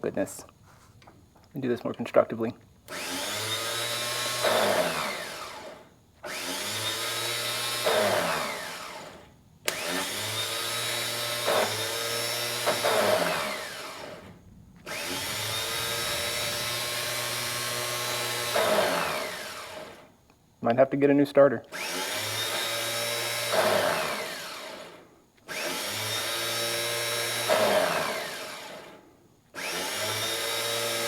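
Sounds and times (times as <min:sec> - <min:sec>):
starter motor whining: 0:02.9 - 0:20.2, 0:21.7 - 0:31.0.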